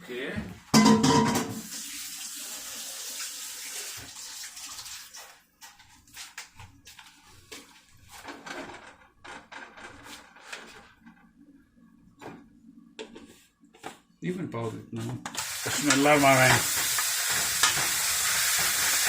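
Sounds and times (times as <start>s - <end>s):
chicken sizzling in oil: 15.4s - 19.0s.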